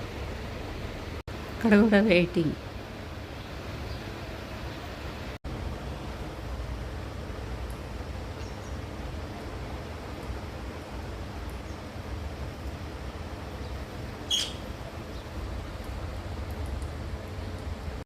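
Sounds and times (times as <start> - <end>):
faint bird chirps: 13.6 - 15.3
bird sharp high call: 14.3 - 14.6.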